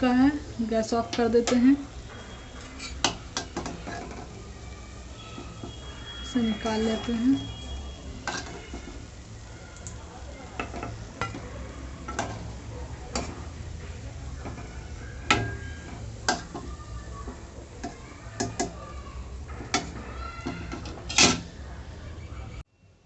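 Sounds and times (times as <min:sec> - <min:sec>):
metal utensils knocking on pan: 0:01.0 - 0:04.4, 0:08.2 - 0:09.2, 0:10.5 - 0:21.5.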